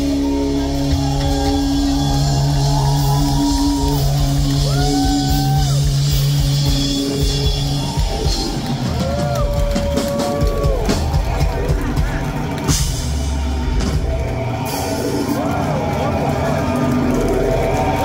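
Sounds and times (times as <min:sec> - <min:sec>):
crowd shouting: 0:00.0 - 0:06.4
drums: 0:00.0 - 0:18.0
pop-punk band playing live: 0:00.0 - 0:18.0.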